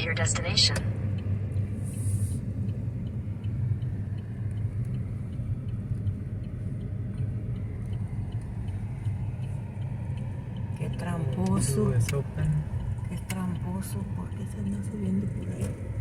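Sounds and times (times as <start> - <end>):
road and engine rumble: 0.0 - 16.0
turn signal ticking: 0.0 - 16.0.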